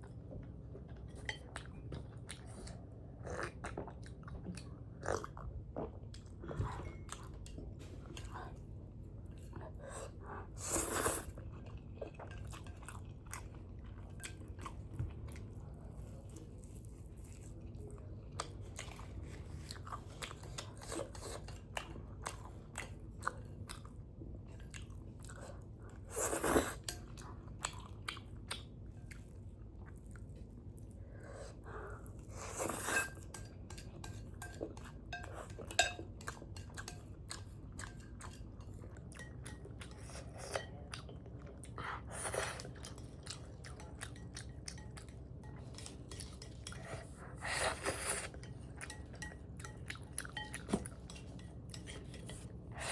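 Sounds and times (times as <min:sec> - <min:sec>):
chewing noodles: 0:09.2 - 0:52.9
cutlery clinking on a bowl: 0:32.7 - 0:41.2, 0:42.6 - 0:52.9.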